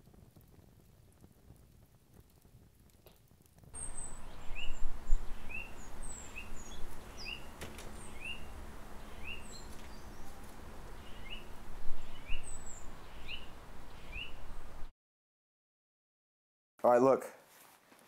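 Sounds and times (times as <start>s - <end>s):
low rumbling background noise: 3.8s - 14.9s
small birds chirping: 3.8s - 14.9s.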